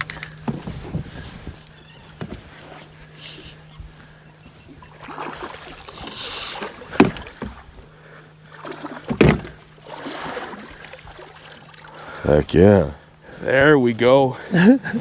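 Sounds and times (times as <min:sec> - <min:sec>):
steady low hum: 0:00.0 - 0:15.0
water splashing against kayak: 0:04.8 - 0:07.8, 0:08.4 - 0:12.2
sharp knocks on hull: 0:06.8 - 0:07.7, 0:08.7 - 0:09.7.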